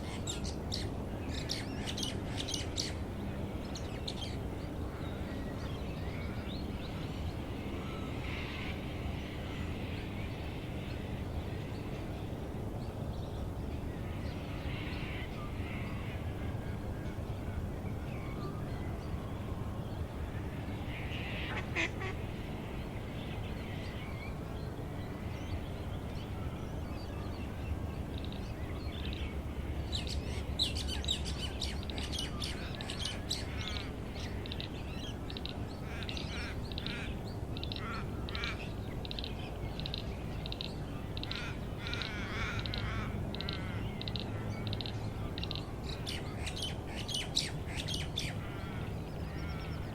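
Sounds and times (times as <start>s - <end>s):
birds calling and singing: 12.8s - 49.9s.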